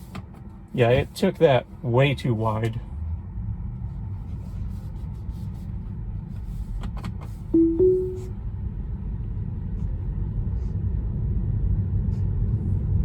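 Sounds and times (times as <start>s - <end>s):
road and tyre rumble: 0.0s - 7.5s, 8.5s - 13.0s
rising two-note chime: 7.6s - 8.3s.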